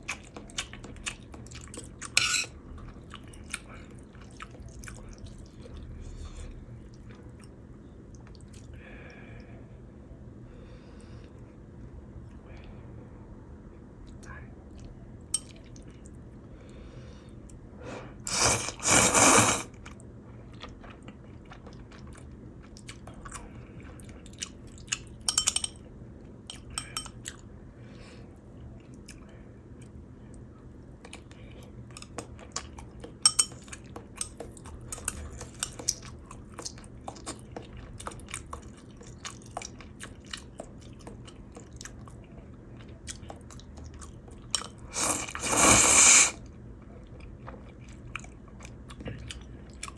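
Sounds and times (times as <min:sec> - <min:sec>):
person chewing crunchy bites: 0:18.3 - 0:19.7, 0:44.5 - 0:46.4
person slurping noodles: 0:18.3 - 0:19.7, 0:44.9 - 0:46.4.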